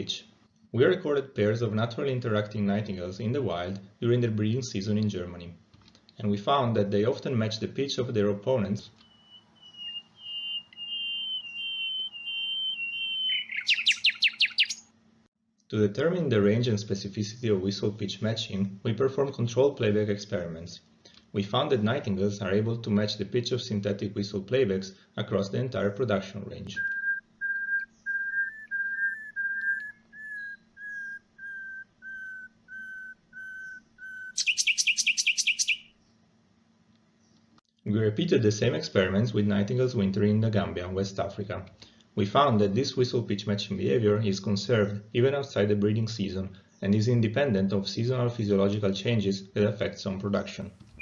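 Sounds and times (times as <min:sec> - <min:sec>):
nightingale whistling song: 0:09.0 - 0:14.9, 0:26.8 - 0:36.1, 0:50.8 - 0:51.0
fast harsh bird trill: 0:09.1 - 0:14.8, 0:28.0 - 0:35.9.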